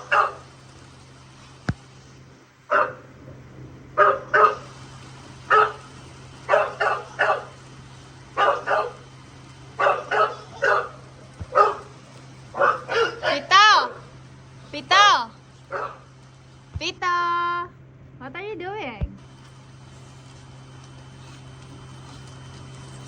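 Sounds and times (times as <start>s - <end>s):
dog barking: 0.0s - 0.5s, 2.7s - 3.1s, 4.0s - 4.8s, 5.4s - 7.6s, 8.3s - 9.1s, 9.7s - 14.1s, 15.6s - 16.1s.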